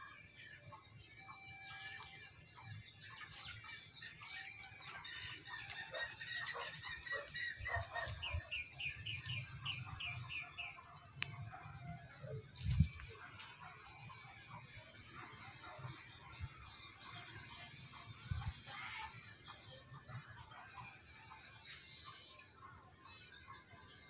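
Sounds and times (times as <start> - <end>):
birds chirping and calling: 0.0 - 24.0.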